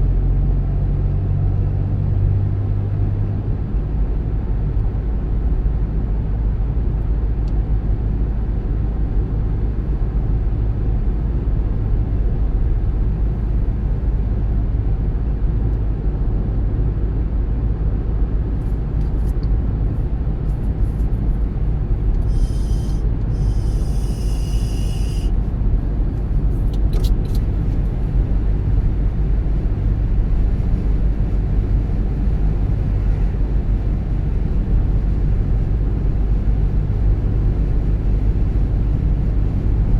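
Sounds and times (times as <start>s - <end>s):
car road and engine rumble: 0.0s - 39.9s
short hiss: 22.2s - 25.3s.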